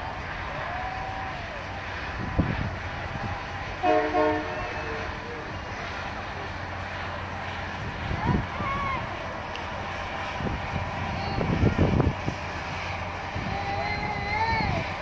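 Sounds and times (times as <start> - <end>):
freight train cars rolling: 0.0 - 15.0
train horn chord blasts: 3.8 - 5.3.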